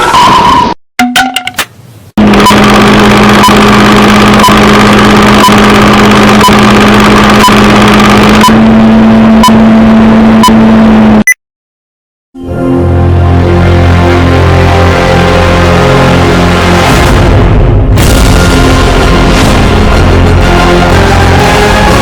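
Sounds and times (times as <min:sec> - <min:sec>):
countdown ticks and beeps: 0:01.0 - 0:01.6, 0:02.3 - 0:08.6
loud electronic hum: 0:02.2 - 0:11.3, 0:14.2 - 0:22.0
music: 0:12.4 - 0:22.0.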